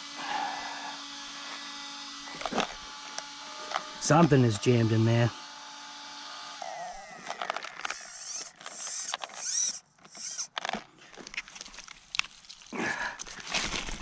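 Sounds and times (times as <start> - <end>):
steering servo buzzing and whining: 0.0 - 11.4
creaking and clicking: 7.1 - 12.4.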